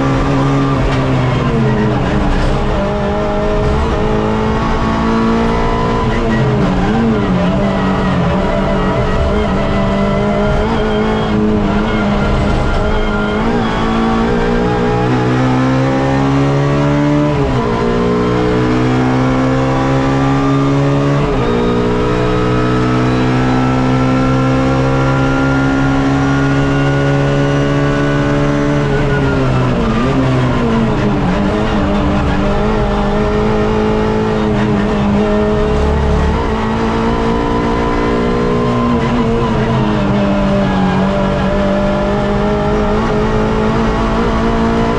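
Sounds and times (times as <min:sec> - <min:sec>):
race car engine pulling through gears: 0:00.0 - 0:44.9.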